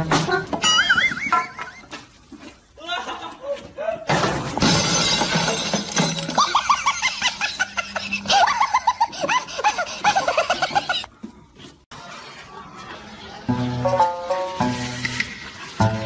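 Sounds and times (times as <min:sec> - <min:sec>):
person laughing hard: 0:02.8 - 0:04.1, 0:06.4 - 0:11.1.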